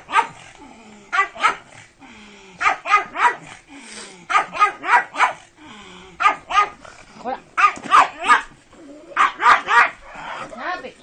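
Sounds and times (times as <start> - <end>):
dog barking: 0.0 - 0.4, 1.1 - 1.7, 2.6 - 3.5, 4.3 - 5.4, 6.2 - 6.8, 7.6 - 8.5, 9.2 - 10.0.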